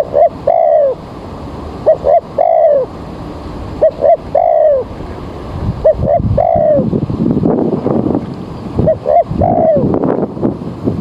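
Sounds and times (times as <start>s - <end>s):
dove cooing: 0.0s - 1.0s, 1.8s - 3.0s, 3.8s - 5.0s, 5.8s - 6.9s, 8.8s - 10.0s.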